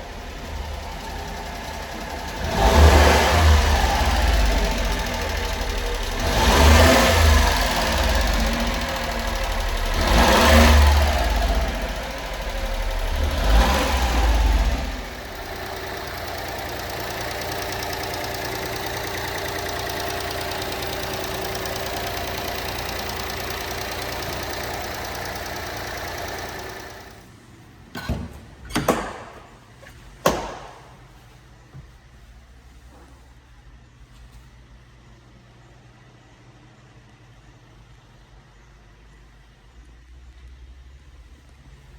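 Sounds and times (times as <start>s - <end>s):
small truck engine revving and idling: 0.0s - 27.4s
sharp knocks: 28.0s - 31.2s.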